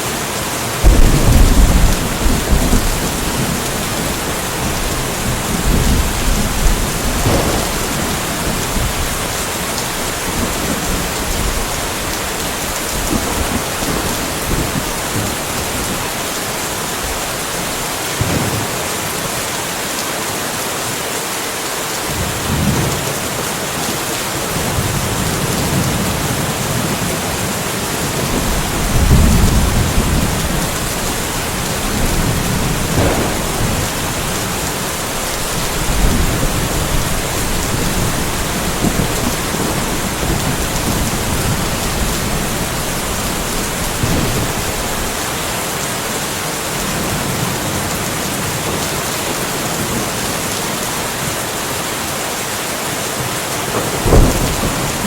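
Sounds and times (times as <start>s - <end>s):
steady rainfall: 0.0s - 55.0s
distant thunder rumbling: 0.8s - 18.8s, 28.0s - 45.3s, 53.7s - 55.0s.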